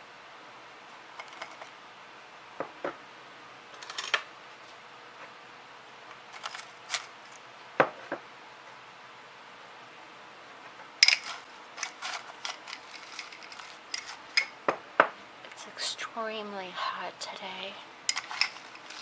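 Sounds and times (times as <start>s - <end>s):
faint steady hiss: 0.0s - 19.0s
small objects clicking and tapping: 11.0s - 15.6s, 18.1s - 19.0s.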